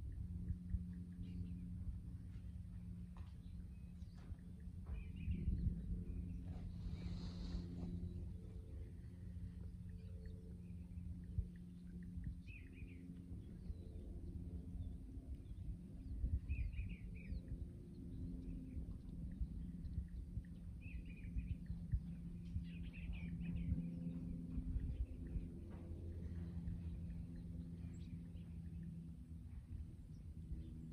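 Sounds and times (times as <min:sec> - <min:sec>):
low hum: 0:00.0 - 0:30.9
low rumble: 0:00.0 - 0:30.9
small birds chirping: 0:09.7 - 0:14.1.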